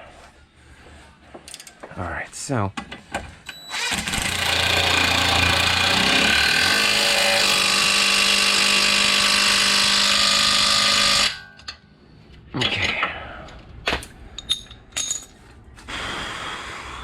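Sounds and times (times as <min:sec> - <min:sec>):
power tool motor running: 0:03.7 - 0:11.4.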